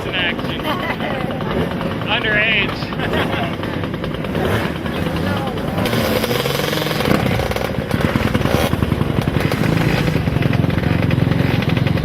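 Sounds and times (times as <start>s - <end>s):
atv engines revving: 0.0s - 12.0s
closer engine running: 0.0s - 12.0s.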